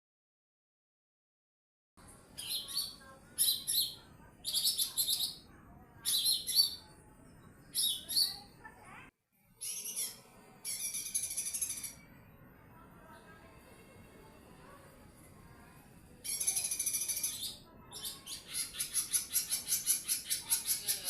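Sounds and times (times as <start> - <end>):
bird singing high phrases: 2.4 - 6.9, 7.7 - 8.5, 9.6 - 12.0, 16.3 - 21.0.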